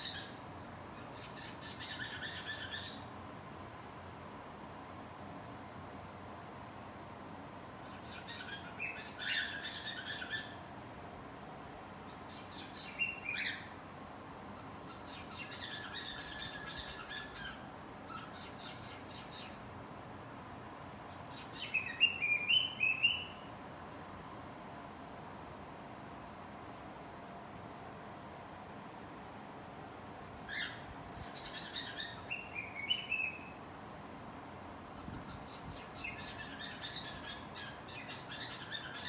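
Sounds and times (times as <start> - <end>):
cockatiel chirping and whistling: 8.1 - 10.5, 14.9 - 19.6, 21.3 - 23.3, 30.5 - 33.4, 35.5 - 39.0.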